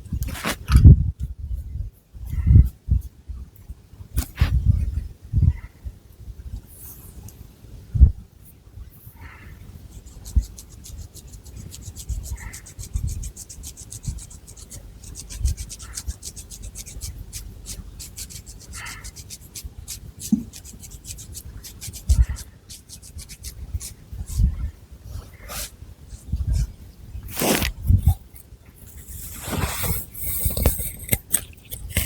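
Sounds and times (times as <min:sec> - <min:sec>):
fingernails scratching hair and scalp: 0:09.9 - 0:24.5, 0:27.3 - 0:28.2, 0:28.9 - 0:32.0.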